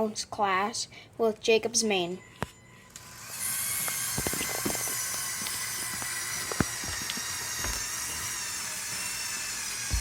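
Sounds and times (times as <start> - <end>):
electric motors whining: 2.2 - 10.0
small gear clicks: 3.0 - 10.0.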